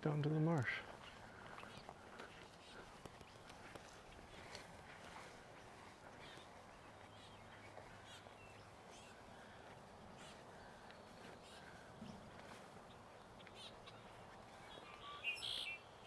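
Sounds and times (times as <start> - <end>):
faint bird calls: 5.2 - 16.0.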